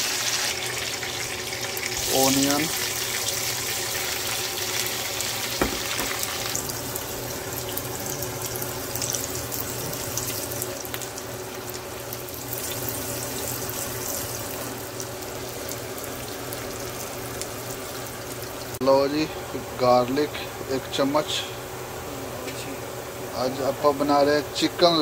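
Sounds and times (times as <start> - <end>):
onions sizzling in hot oil: 0.0 - 18.8
knock on wok: 5.6 - 6.3.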